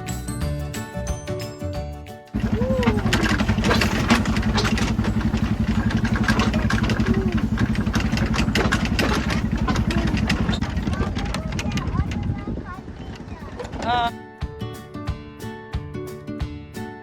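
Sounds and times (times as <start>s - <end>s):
sharp rattling clicks: 2.4s - 12.4s
engine running with fast pulse: 2.4s - 14.0s.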